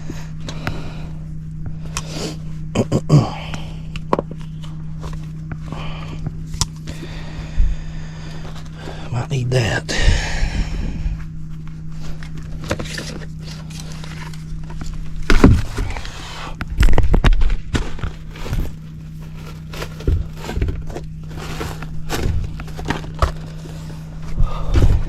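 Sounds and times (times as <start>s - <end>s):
steady low hum: 0.0s - 25.0s
thumps: 14.8s - 16.1s.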